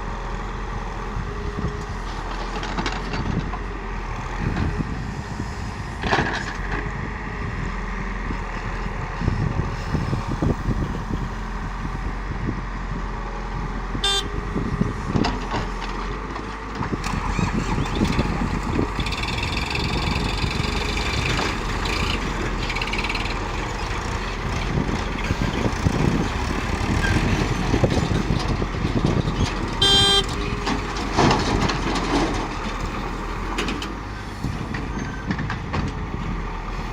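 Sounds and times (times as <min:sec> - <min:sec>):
heavy vehicle engines running: 0:00.0 - 0:36.9
short horn toots: 0:14.0 - 0:14.3, 0:29.8 - 0:30.3.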